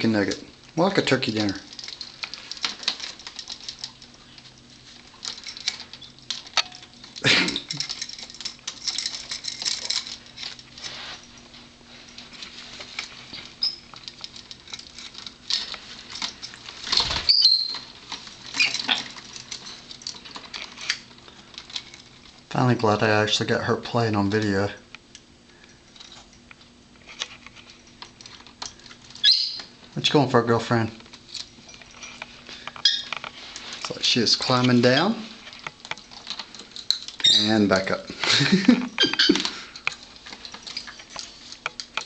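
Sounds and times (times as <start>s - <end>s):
beak and claws rattling on perches: 0.0s - 24.7s, 25.6s - 42.0s
parrot chirping: 13.6s - 13.9s, 17.2s - 17.9s, 29.2s - 29.8s, 32.8s - 33.1s, 39.0s - 39.4s.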